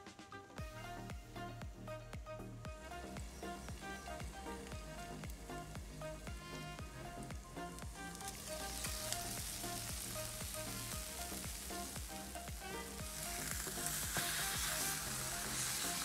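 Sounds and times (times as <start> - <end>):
soft background music: 0.0 - 16.0
food sizzling in a pan: 8.2 - 16.0.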